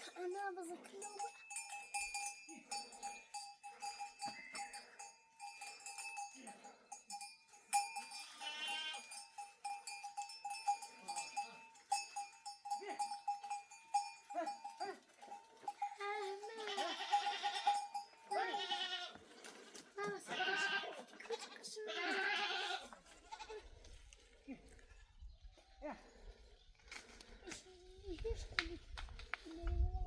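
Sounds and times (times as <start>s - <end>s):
livestock bells clinking: 0.0s - 22.6s
sheep bleating: 8.2s - 9.1s, 16.2s - 19.2s, 20.0s - 23.6s.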